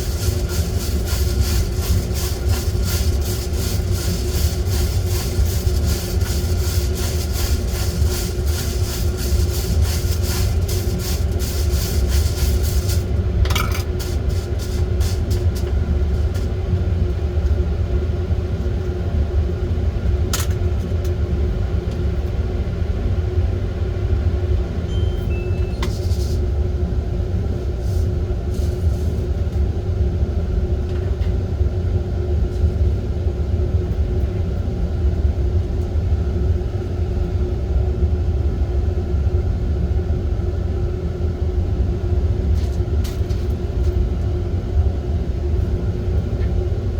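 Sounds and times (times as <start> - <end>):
coffee beans rattling: 0.0 - 15.6.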